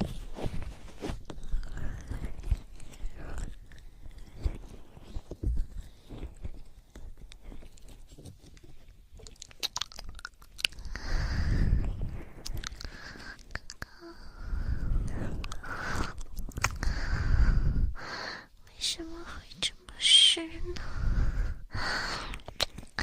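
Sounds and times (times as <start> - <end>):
wet crackling and squishing: 0.0 - 11.0, 12.3 - 14.0, 15.4 - 17.0
clicks and soft thumps: 4.2 - 9.4.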